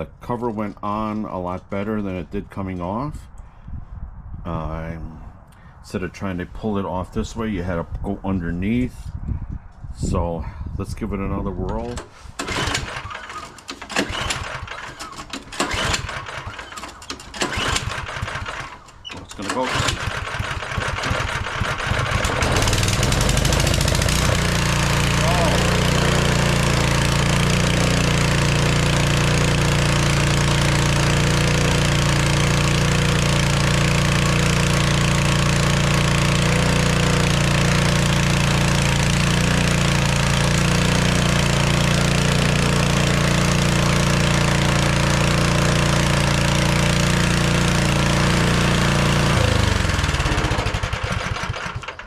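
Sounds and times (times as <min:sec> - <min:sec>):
snowblower engine running: 0:11.7 - 0:52.0.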